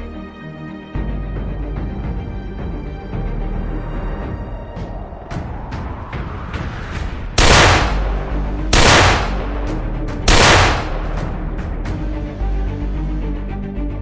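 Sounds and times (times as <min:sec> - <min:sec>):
background music: 0:00.0 - 0:14.0
sharp gunshot-like bangs: 0:07.4 - 0:11.3.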